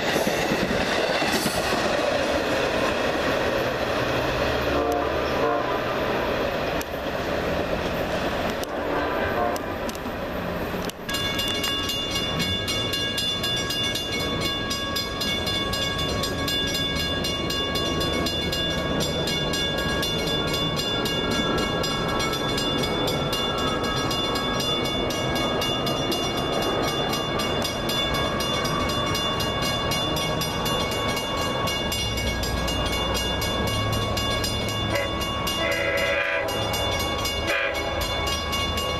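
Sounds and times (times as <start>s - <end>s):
train rumbling past: 0.0s - 38.9s
railroad crossing bell ringing: 10.8s - 38.9s.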